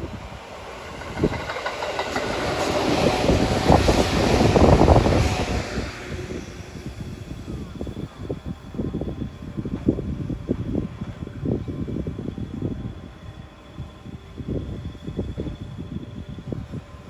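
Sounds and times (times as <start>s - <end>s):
wheels clacking over rail joints: 0.0s - 5.6s
electric train passing: 0.0s - 17.0s.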